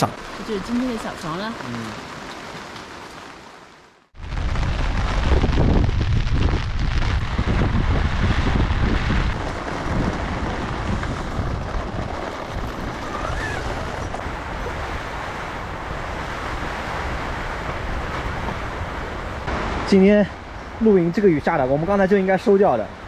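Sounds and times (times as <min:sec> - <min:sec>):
heavy rain: 0:00.0 - 0:23.0
wind buffeting microphone: 0:04.2 - 0:19.5
storm wind gusting: 0:04.2 - 0:20.8.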